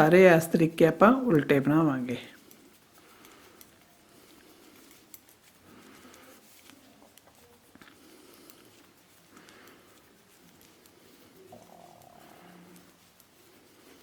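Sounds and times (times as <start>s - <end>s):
knitting needles clicking: 0.0s - 14.0s
yarn rustling: 0.0s - 14.0s.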